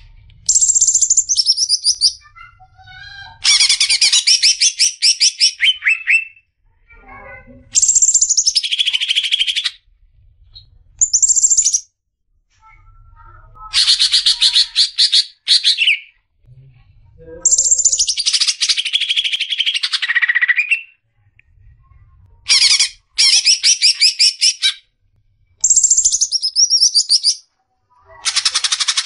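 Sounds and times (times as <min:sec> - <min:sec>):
bird singing high chattering notes: 0:00.5 - 0:02.3, 0:07.8 - 0:09.8, 0:11.0 - 0:11.9, 0:17.4 - 0:21.0, 0:22.5 - 0:24.8, 0:25.6 - 0:27.4.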